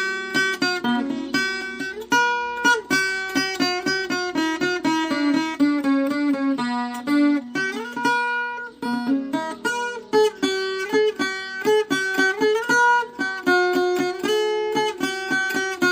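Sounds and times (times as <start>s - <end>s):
plucked guitar melody: 0.0s - 15.9s.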